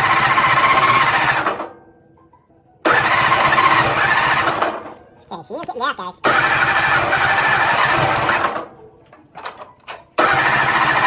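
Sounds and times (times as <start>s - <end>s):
tractor engine cranking: 0.0s - 1.8s, 2.8s - 5.3s, 6.2s - 11.0s.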